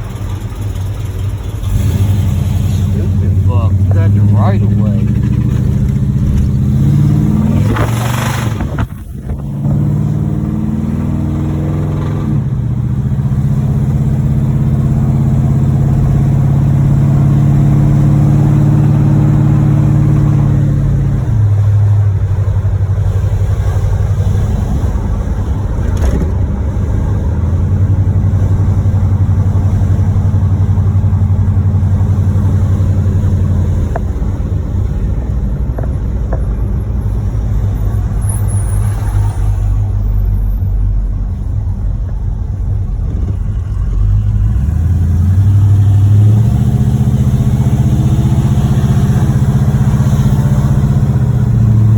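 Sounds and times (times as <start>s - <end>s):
car engine with rod knock: 4.8s - 6.8s, 25.8s - 26.6s, 33.7s - 34.4s, 35.7s - 36.8s.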